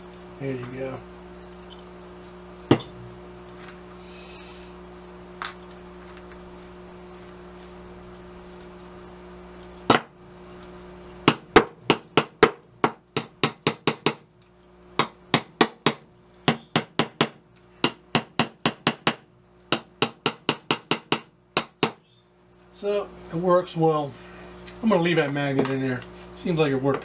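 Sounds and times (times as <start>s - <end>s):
tack hammer tapping nails: 11.3s - 14.2s, 15.0s - 22.0s.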